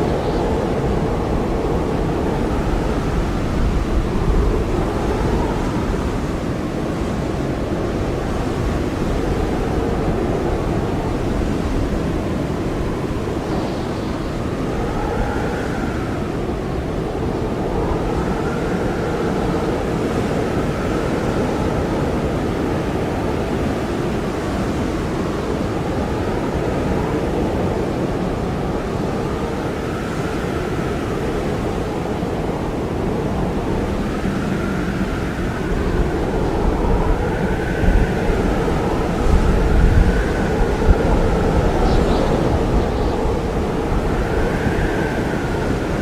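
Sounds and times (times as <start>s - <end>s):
faint wavering whistling: 0.0s - 6.4s, 32.8s - 46.0s
blizzard wind rushing: 0.0s - 46.0s
thin wind whistle: 0.0s - 46.0s.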